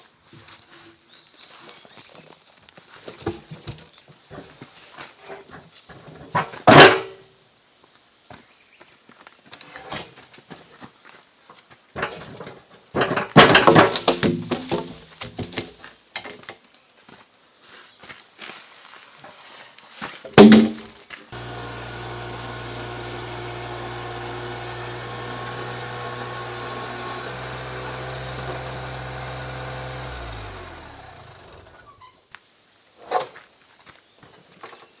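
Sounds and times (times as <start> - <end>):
heavy thunk: 20.3 - 20.9
engine running and winding down: 21.4 - 32.0.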